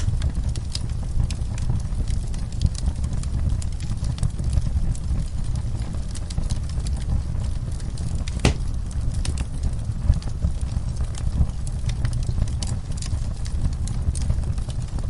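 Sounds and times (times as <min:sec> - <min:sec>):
wood fire crackling: 0:00.0 - 0:15.0
loud sharp crack: 0:08.4 - 0:08.8.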